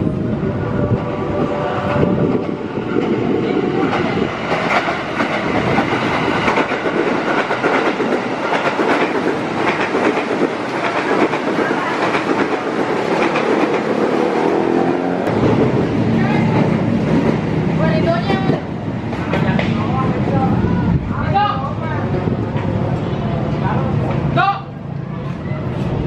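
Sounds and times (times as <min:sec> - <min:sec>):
train running noise: 0:00.0 - 0:26.0
train wheels clattering: 0:01.8 - 0:20.0.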